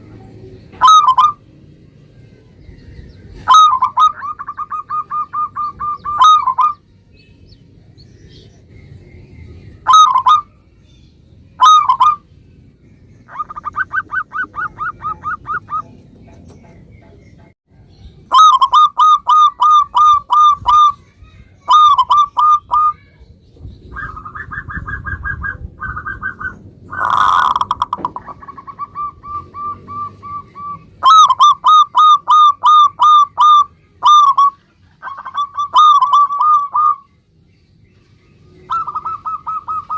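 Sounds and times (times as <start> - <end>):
dove cooing: 0.4 - 1.4, 3.2 - 6.8, 9.8 - 10.5, 11.6 - 12.2, 13.3 - 17.1, 18.3 - 21.0, 21.6 - 23.1, 23.9 - 37.1, 38.6 - 39.9.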